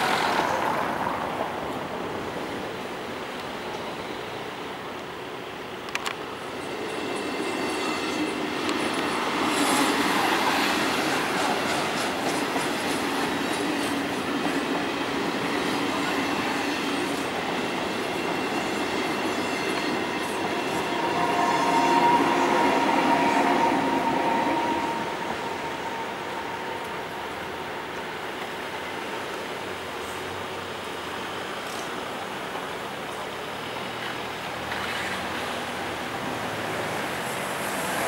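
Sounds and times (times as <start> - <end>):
locomotive whine: 0.0 - 38.0
train wheels clattering on rails: 5.9 - 29.6, 31.5 - 38.0.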